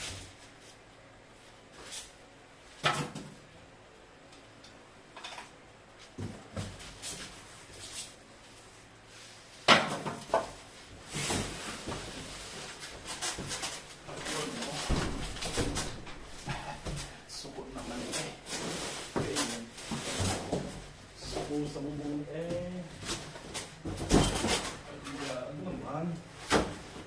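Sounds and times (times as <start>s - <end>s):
knocks and thuds: 14.7s - 17.2s.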